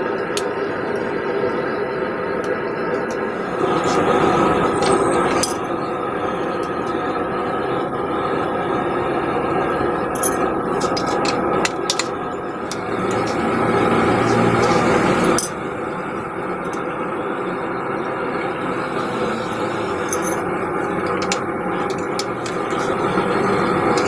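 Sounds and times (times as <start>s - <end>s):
metallic clinks of tongs: 4.8s - 5.7s, 10.2s - 12.1s, 12.7s - 13.5s, 14.2s - 15.6s, 19.5s - 23.1s.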